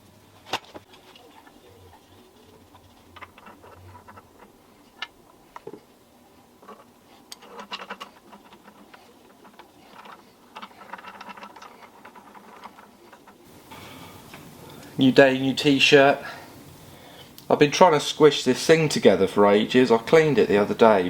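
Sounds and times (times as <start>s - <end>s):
small metal parts clinking: 6.6s - 13.4s.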